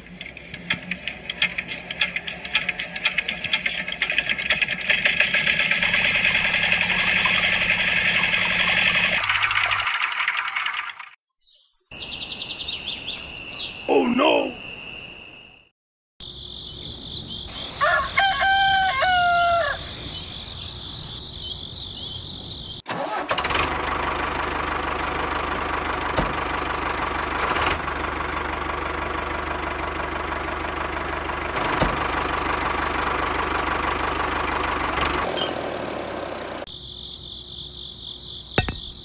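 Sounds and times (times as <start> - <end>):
rooster crowing: 17.7 - 20.1
high insect drone: 36.7 - 39.0.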